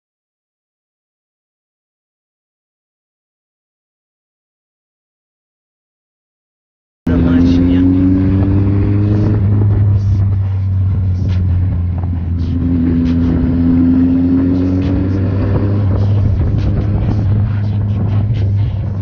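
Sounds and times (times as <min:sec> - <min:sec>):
motorcycle engine running: 0:07.1 - 0:19.0
road and wind rush: 0:07.1 - 0:19.0.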